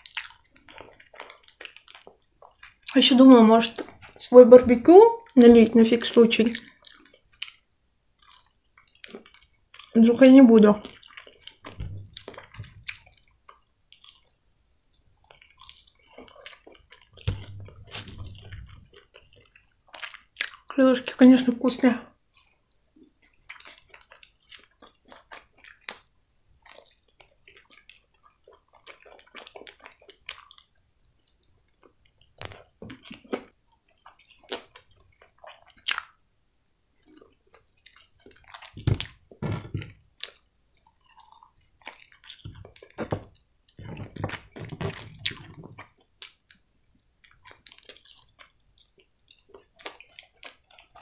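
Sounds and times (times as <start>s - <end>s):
chewing crispy chicken: 0.0s - 4.4s, 5.2s - 21.2s, 22.1s - 51.0s
deep thumps: 11.7s - 12.9s, 17.2s - 19.0s.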